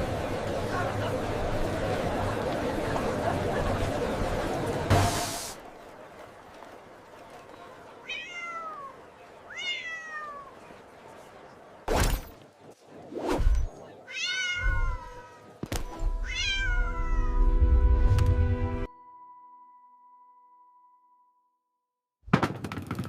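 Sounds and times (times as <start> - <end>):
cat meowing: 8.1 - 10.5, 14.1 - 15.5, 16.2 - 17.4.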